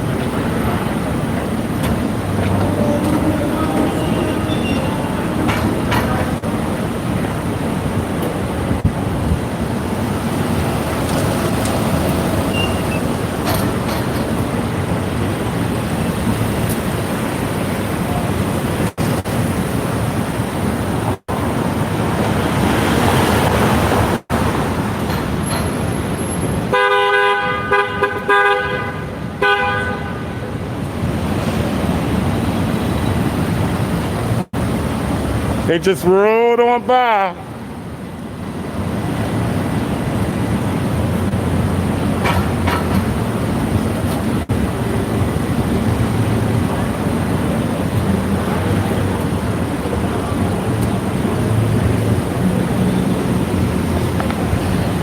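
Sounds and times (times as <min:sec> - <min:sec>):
street traffic noise: 0:00.0 - 0:55.0
vehicle horn honking: 0:02.3 - 0:06.4, 0:11.9 - 0:13.1, 0:26.7 - 0:30.5.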